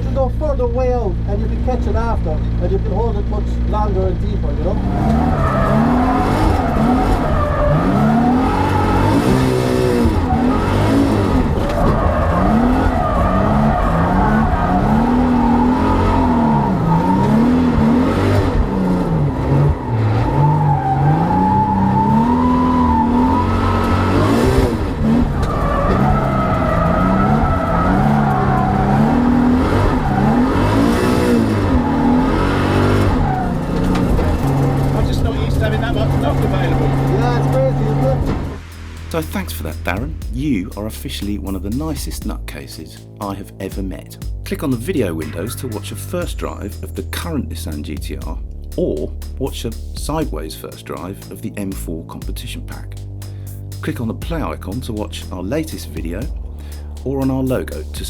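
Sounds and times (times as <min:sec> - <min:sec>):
car engine revving: 0:00.0 - 0:58.0
tyres squealing: 0:04.6 - 0:18.3, 0:19.4 - 0:38.5.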